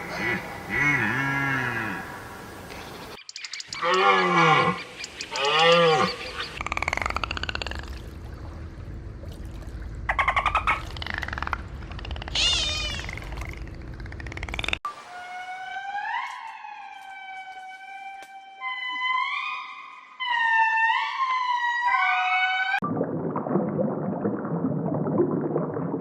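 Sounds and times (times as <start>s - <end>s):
animal calls: 10.1s - 22.8s
rising and falling calls: 12.1s - 13.6s.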